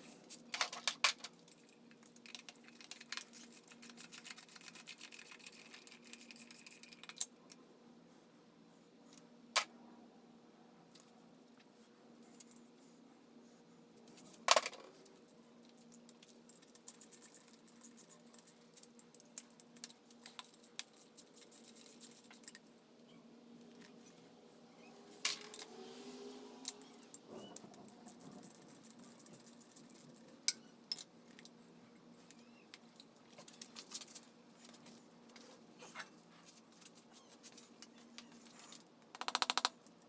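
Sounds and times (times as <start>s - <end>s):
tools and metal parts clinking: 28.4s - 31.5s.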